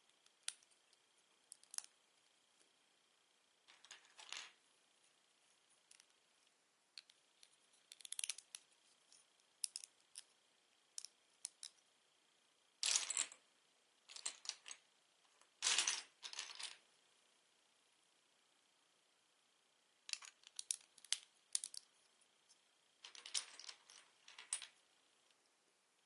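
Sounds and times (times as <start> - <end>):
plastic bricks clicking: 7.9 - 8.6, 9.6 - 10.3, 20.1 - 21.9
plastic pieces clattering: 23.0 - 24.7.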